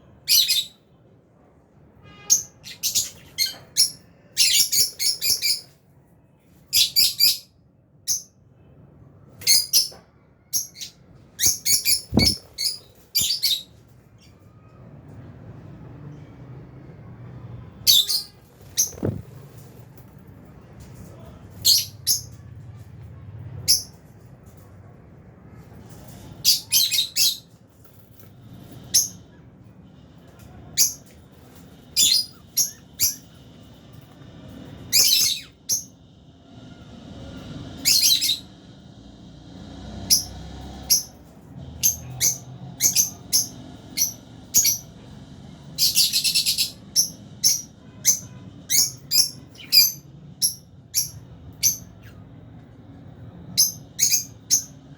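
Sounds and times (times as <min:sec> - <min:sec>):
lovebirds chirping: 0:09.4 - 0:14.6.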